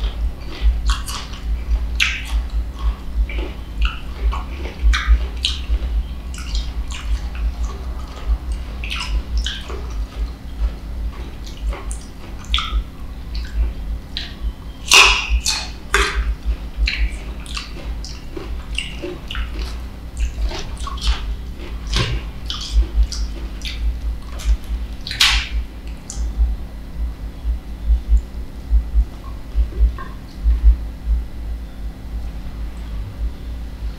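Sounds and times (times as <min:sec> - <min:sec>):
wet chewing mouth clicks: 0:00.0 - 0:26.5
steady low hum: 0:00.0 - 0:33.9.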